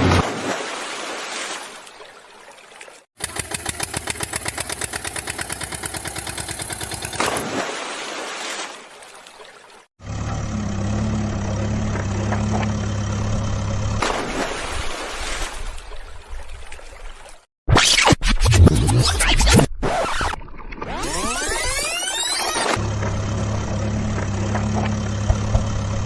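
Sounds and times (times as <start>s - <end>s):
fast chugging engine: 3.2s - 7.2s
low engine hum: 10.0s - 14.4s, 22.8s - 26.0s.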